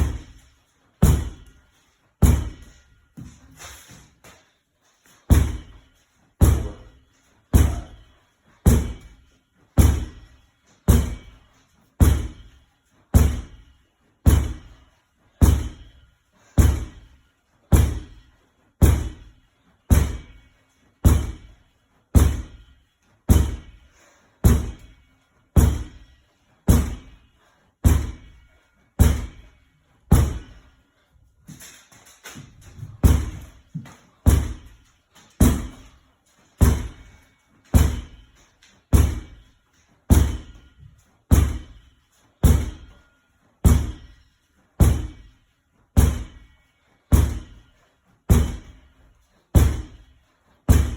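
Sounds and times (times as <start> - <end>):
medicine ball thudding against wall: 0.0 - 0.4, 1.0 - 1.6, 2.2 - 3.3, 5.3 - 5.8, 6.4 - 9.2, 9.8 - 11.4, 12.0 - 12.5, 13.1 - 13.6, 14.2 - 14.8, 15.4 - 16.0, 16.6 - 17.1, 17.7 - 18.2, 18.8 - 19.3, 19.9 - 20.4, 21.0 - 22.7, 23.3 - 23.8, 24.4 - 24.9, 25.6 - 26.1, 26.7 - 27.2, 27.8 - 28.4, 29.0 - 29.5, 30.1 - 30.6, 32.4 - 34.8, 35.4 - 35.9, 36.6 - 38.3, 38.9 - 39.5, 40.1 - 40.6, 41.3 - 43.0, 43.6 - 44.2, 44.8 - 45.3, 46.0 - 46.5, 47.1 - 47.6, 48.3 - 48.9, 49.5 - 50.1, 50.7 - 50.9.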